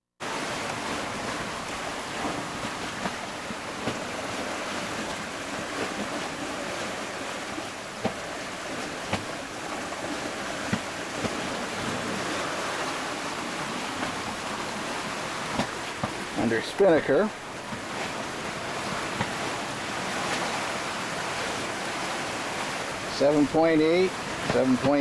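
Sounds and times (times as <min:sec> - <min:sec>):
sea water rushing past boat: 0:00.2 - 0:25.0
wind: 0:00.2 - 0:25.0
short sharp knocks: 0:09.1 - 0:09.4.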